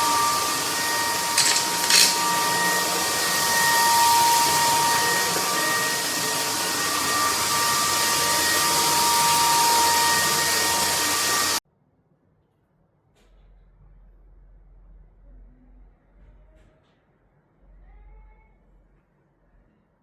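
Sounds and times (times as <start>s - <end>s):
stick vacuum cleaner running: 0.0s - 11.6s.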